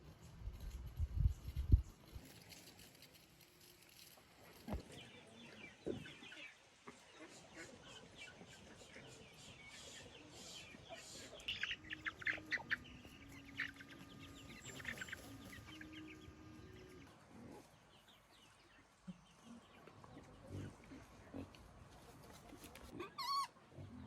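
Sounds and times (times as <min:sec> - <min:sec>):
chickens clucking: 0:04.7 - 0:24.0.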